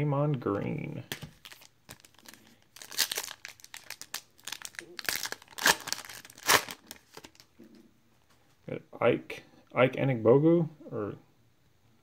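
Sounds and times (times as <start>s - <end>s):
foil wrapper crinkling and tearing: 1.1s - 7.5s.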